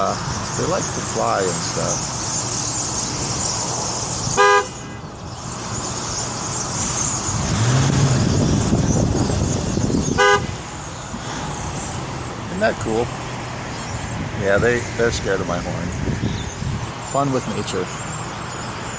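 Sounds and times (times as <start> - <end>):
vehicle engine rumbling: 0.0 - 18.9
car horn toots: 4.4 - 5.0, 10.1 - 10.6.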